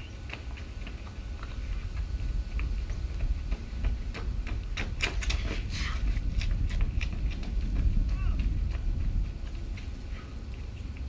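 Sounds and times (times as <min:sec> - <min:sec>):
running footsteps: 0:00.0 - 0:11.0
wind on microphone: 0:00.0 - 0:11.0.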